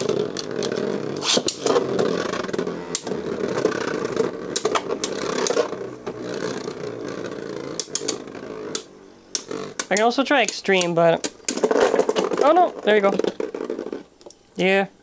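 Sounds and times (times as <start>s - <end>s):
spinning tops whirring and scraping: 0.0s - 14.7s
tops clacking together: 4.5s - 6.2s, 7.7s - 14.3s.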